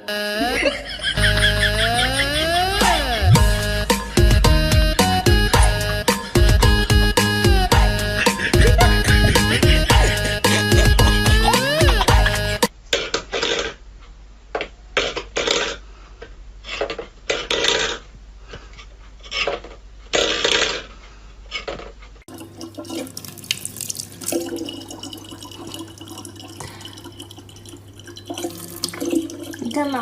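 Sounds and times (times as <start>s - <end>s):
water running from a tap: 22.3s - 30.0s
water splashing: 22.3s - 30.0s.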